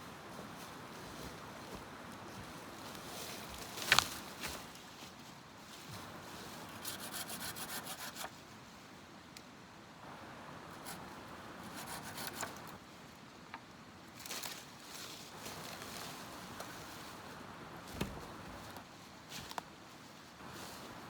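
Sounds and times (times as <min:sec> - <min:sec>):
wood being scraped by hand: 0:06.8 - 0:08.3, 0:11.7 - 0:12.8.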